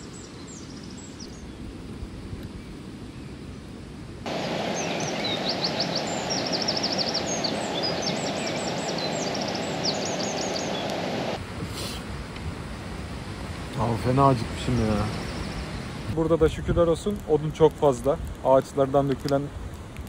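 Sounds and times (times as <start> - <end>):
stream running: 4.2 - 20.0
songbird trilling: 4.7 - 11.0.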